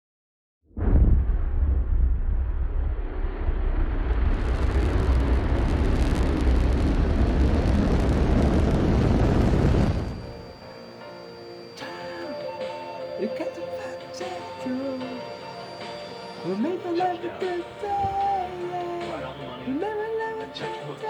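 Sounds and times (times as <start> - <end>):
rocket launch roar: 0.7 - 12.9.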